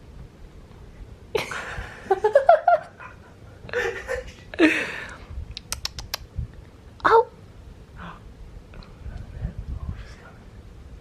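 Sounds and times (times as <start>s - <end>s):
person laughing: 1.4s - 5.1s.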